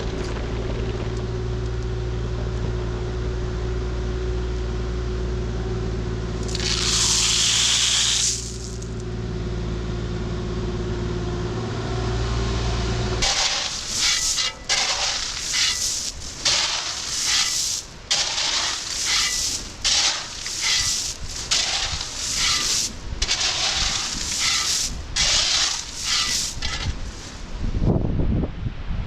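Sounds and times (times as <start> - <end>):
heavy equipment engine running: 0.0 - 27.8
loud hiss burst: 13.2 - 27.5.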